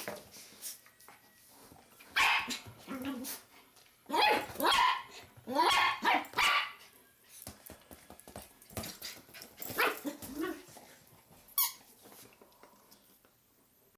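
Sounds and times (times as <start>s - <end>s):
dog barking: 4.1s - 6.8s.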